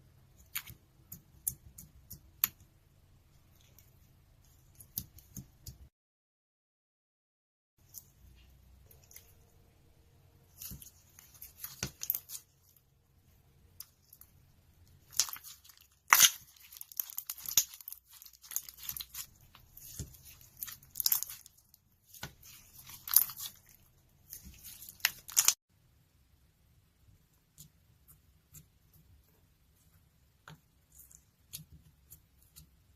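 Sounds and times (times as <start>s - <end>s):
slime crackling: 10.5s - 12.8s, 14.9s - 25.6s.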